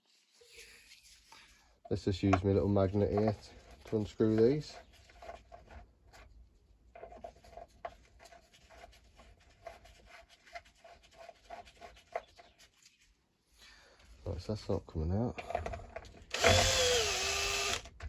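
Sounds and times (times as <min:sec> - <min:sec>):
screwdriver scratching at screws: 0:16.3 - 0:17.9.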